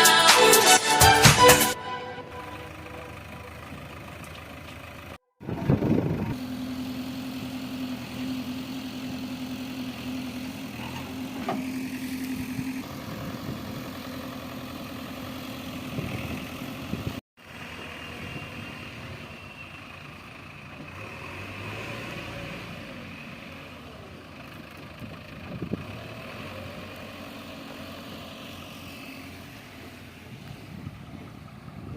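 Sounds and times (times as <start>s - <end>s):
heavy diesel engine running: 1.0s - 21.9s, 22.6s - 31.9s.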